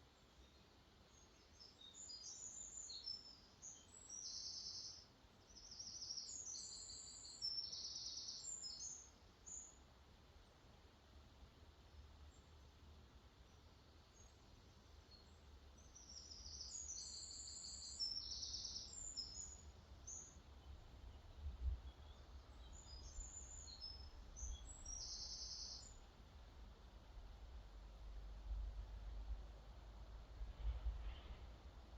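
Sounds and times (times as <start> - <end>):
songbird chirping: 0.0 - 10.0, 11.7 - 26.8
faint low rumble: 19.3 - 31.9.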